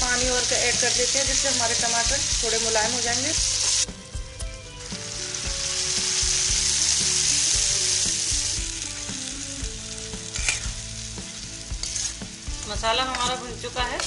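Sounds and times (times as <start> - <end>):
masala sizzling in hot oil: 0.0 - 14.0
spatula scraping a pan: 10.3 - 10.8, 11.6 - 12.4.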